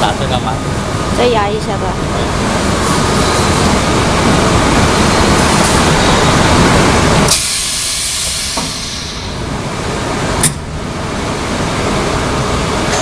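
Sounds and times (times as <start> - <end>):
welding machine hiss: 7.3 - 9.4.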